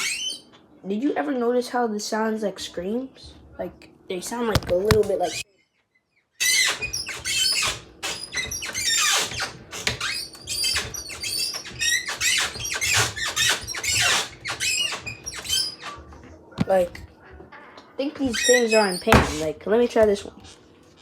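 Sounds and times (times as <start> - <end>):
high-pitched squeaks and squeals: 0.0 - 0.5, 5.2 - 5.4, 6.4 - 16.0, 18.2 - 19.5.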